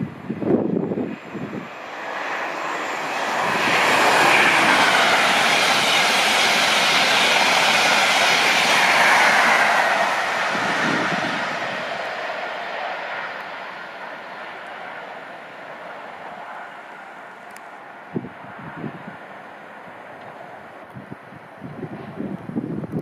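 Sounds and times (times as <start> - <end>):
wind buffeting microphone: 0.0 - 13.8, 18.1 - 19.3, 20.1 - 23.0
train passing at speed: 0.0 - 23.0.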